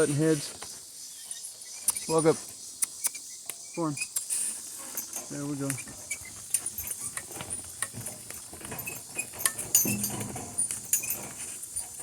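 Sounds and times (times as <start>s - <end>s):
insects droning: 0.0s - 12.0s
harness fittings clinking: 4.0s - 12.0s.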